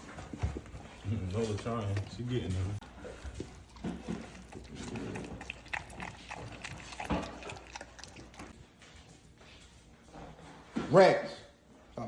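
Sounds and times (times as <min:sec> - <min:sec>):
dogs chewing and lapping: 0:00.0 - 0:09.0.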